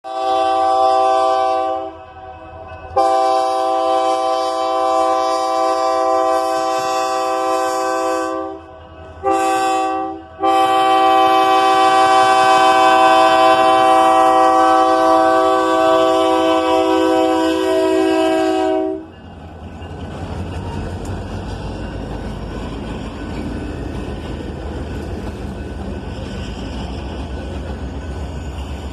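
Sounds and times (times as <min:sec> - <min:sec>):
train air horn blasts: 0:00.0 - 0:19.1
low train rumble: 0:00.0 - 0:28.9.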